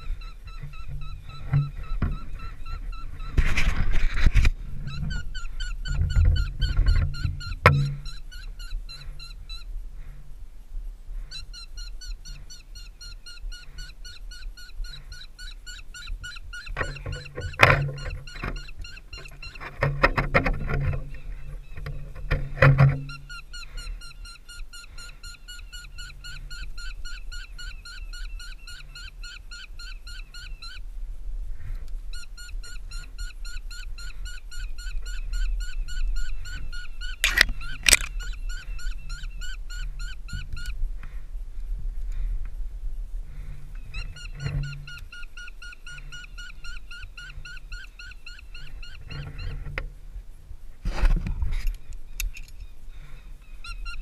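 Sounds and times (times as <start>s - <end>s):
bird squealing calls: 0.0s - 3.7s, 4.8s - 9.7s, 11.2s - 19.8s, 23.0s - 30.8s, 32.1s - 40.8s, 43.8s - 49.7s
climbing gear scraping on tree: 0.6s - 8.2s.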